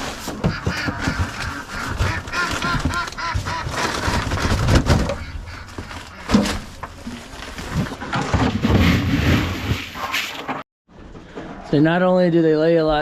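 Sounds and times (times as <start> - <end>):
ducks quacking: 0.1 - 6.7.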